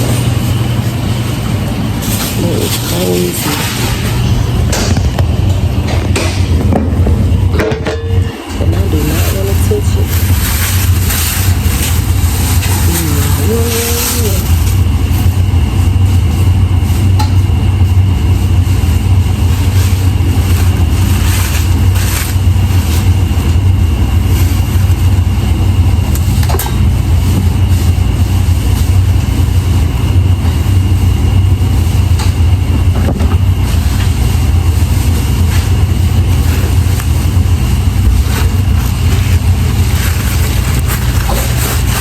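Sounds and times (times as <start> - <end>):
low machine hum: 0.0 - 42.0.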